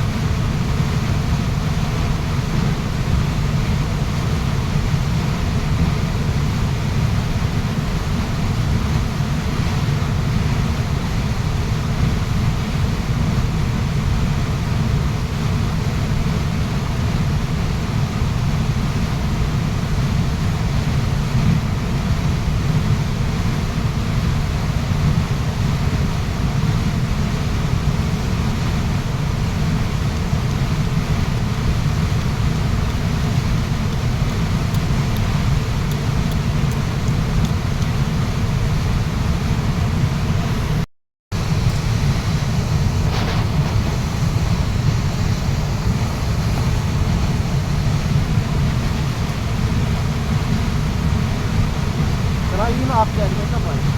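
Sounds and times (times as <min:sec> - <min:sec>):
waterfall rushing: 0:41.4 - 0:53.9.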